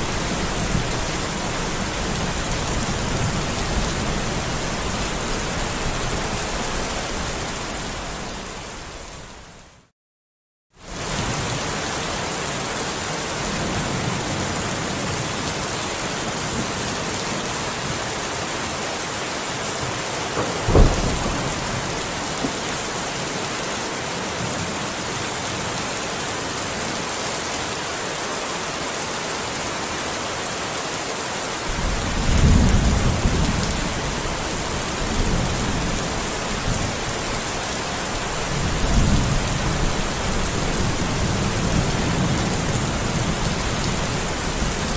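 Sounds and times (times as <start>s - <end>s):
dense rain falling: 0.0s - 9.9s, 10.8s - 44.9s
low rolling thunder: 20.3s - 22.8s, 31.7s - 44.9s
sharp thunderclap: 20.3s - 22.8s, 31.7s - 37.1s.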